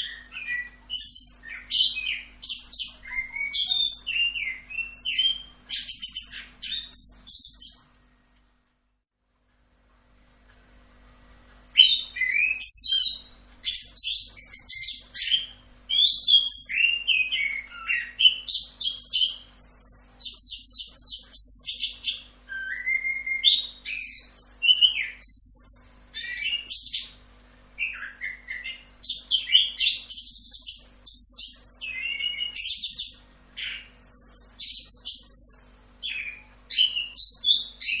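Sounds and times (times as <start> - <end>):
bird singing rolling whistles: 0.0 - 7.8, 11.8 - 27.2, 27.8 - 38.0.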